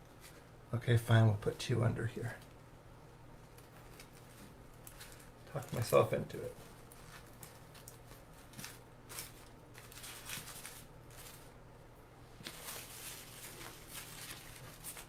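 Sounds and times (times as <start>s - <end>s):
low steady hum: 0.0s - 15.0s
greenery rustling: 3.5s - 11.6s, 12.3s - 15.0s.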